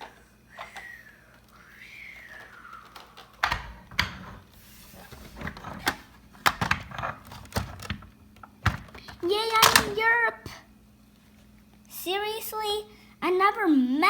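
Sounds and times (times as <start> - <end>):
plastic toys clicking and knocking: 2.2 - 4.5, 5.1 - 10.1.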